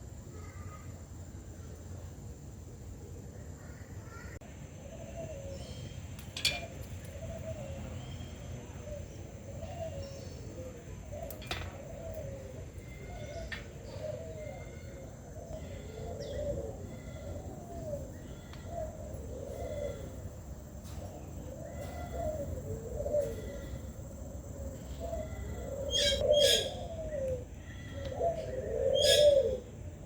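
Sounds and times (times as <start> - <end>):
doves cooing: 6.4 - 30.0.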